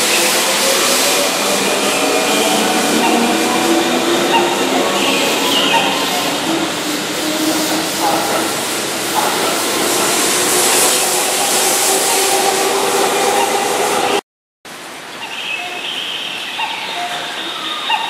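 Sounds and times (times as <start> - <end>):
station ambience: 0.0 - 14.2
train wheels rumbling on rail: 0.0 - 14.2.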